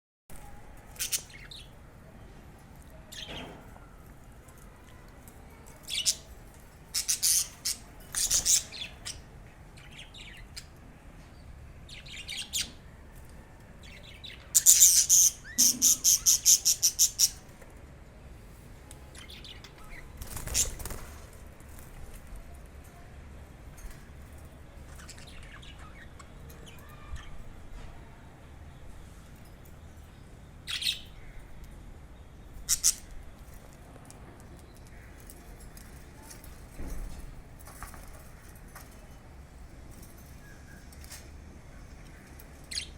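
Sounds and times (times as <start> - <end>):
budgerigars chirping and squawking: 6.9 - 9.2, 14.5 - 17.4, 32.6 - 33.1.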